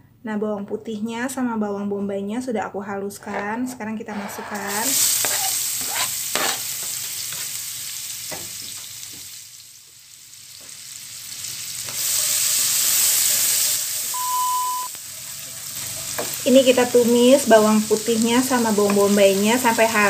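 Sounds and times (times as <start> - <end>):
spatula scraping and tapping pan: 3.2 - 7.5, 18.8 - 20.0
food sizzling in butter: 4.2 - 20.0.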